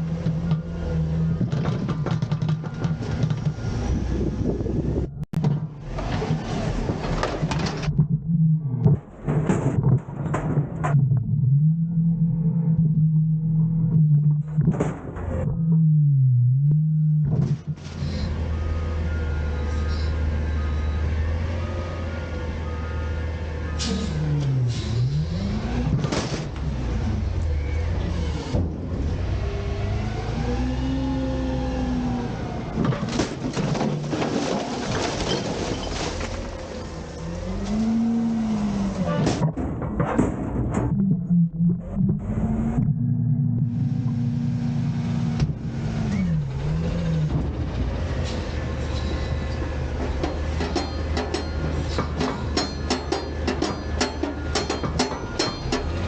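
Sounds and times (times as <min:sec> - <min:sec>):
garbage truck engine revving: 0:00.0 - 0:09.8, 0:10.5 - 0:56.0
metal knocks and clanks: 0:08.8 - 0:11.3, 0:39.1 - 0:42.4, 0:49.5 - 0:56.0
bin clattering and banging: 0:09.0 - 0:11.0, 0:25.9 - 0:26.6, 0:32.8 - 0:36.9, 0:39.1 - 0:40.9, 0:50.0 - 0:56.0.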